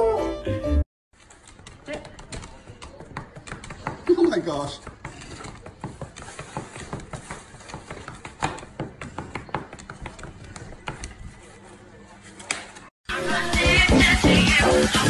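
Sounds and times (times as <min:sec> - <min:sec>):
upbeat electronic music: 0:13.1 - 0:15.0.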